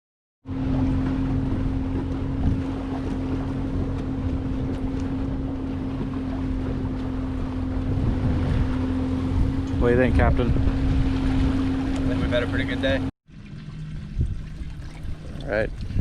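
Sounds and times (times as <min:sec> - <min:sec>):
boat motor running: 0:00.4 - 0:16.0
wind noise on microphone: 0:01.4 - 0:12.1, 0:13.8 - 0:16.0.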